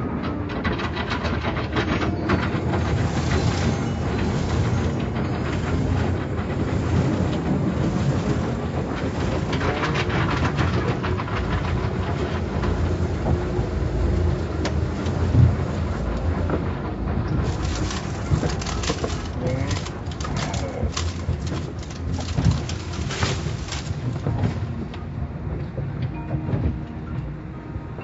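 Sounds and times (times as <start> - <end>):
car wash machinery rumbling: 0.0 - 26.3
irregular clattering and ticks: 0.2 - 25.0.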